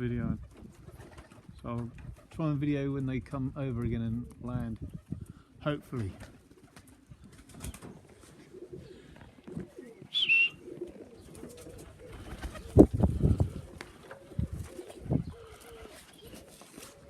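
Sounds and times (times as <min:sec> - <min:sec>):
pigeons cooing: 0:06.2 - 0:17.0.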